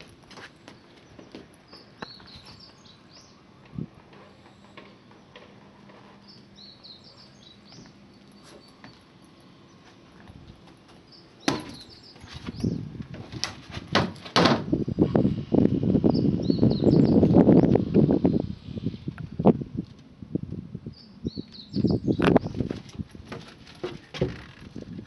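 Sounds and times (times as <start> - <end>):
small birds chirping: 0.5 - 10.1, 10.9 - 12.9, 16.0 - 19.0, 20.9 - 23.0.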